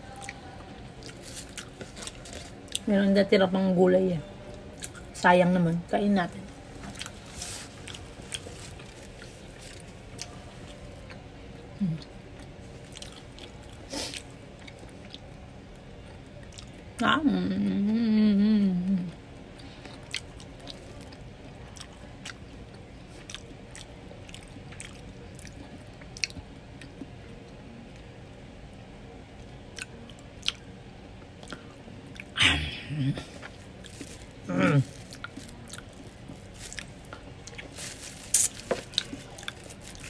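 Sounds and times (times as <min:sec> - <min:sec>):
person chewing a burger: 0:01.0 - 0:02.8, 0:06.7 - 0:16.8, 0:19.5 - 0:27.2, 0:29.4 - 0:32.4, 0:33.2 - 0:40.0
wet mouth clicks: 0:38.3 - 0:38.6.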